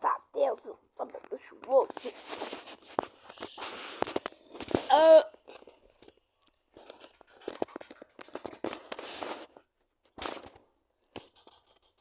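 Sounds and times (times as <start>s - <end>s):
rustling: 1.1s - 10.6s.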